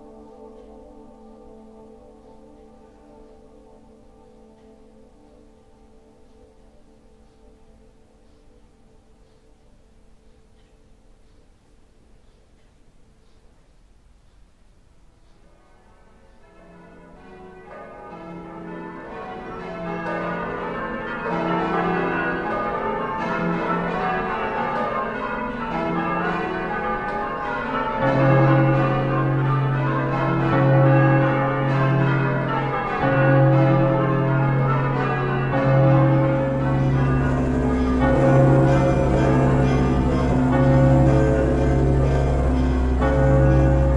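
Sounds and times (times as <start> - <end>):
church bells pealing: 0.0 - 8.2, 15.5 - 43.9
deep steady humming tone: 36.2 - 43.9.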